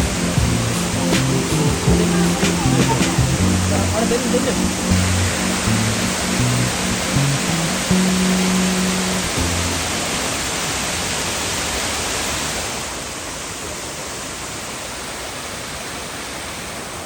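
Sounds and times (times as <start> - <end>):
low music notes: 0.0 - 10.7
waterfall rushing: 0.0 - 17.0.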